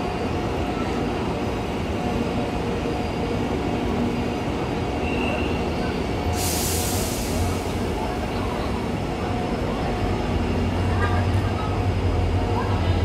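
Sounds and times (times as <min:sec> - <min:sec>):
train rumbling: 0:00.0 - 0:13.0
sudden hiss: 0:06.4 - 0:07.9.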